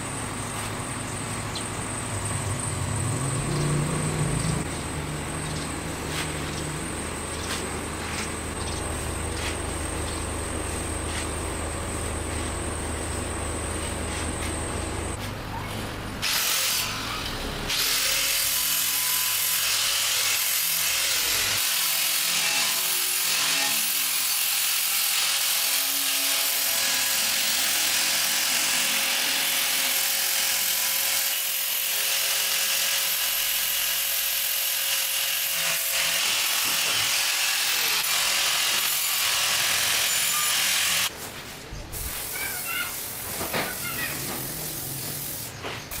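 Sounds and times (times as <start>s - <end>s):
power tool on sheet metal: 16.2s - 41.1s.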